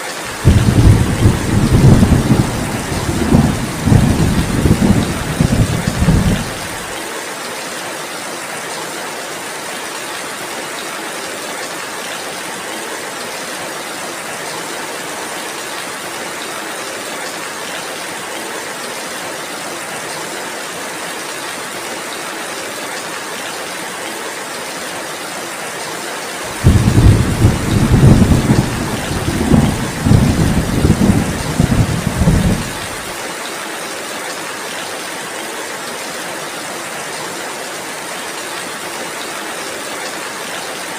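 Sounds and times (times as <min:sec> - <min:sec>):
heavy rain: 0:00.0 - 0:40.9
thunder rumbling: 0:00.4 - 0:06.9, 0:26.5 - 0:33.1.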